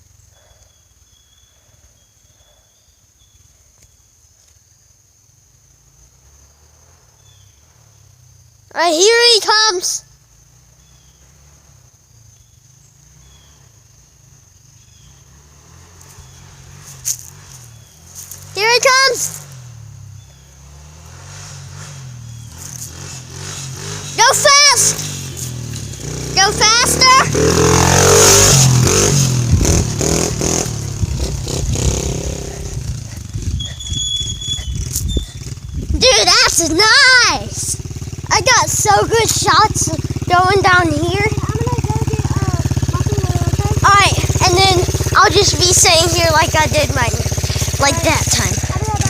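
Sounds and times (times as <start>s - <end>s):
distant dirt bike engine: 5.4s - 49.0s
high-pitched insect drone: 33.4s - 36.7s.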